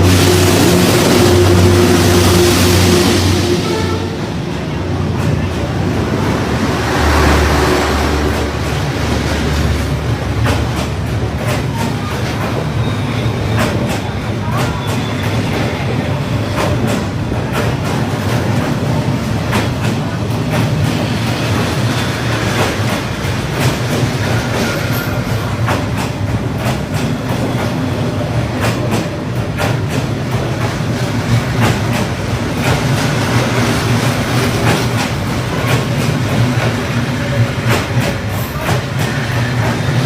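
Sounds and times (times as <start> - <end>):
train rumbling past: 0.0 - 40.0
wheels clicking over rails: 4.6 - 40.0.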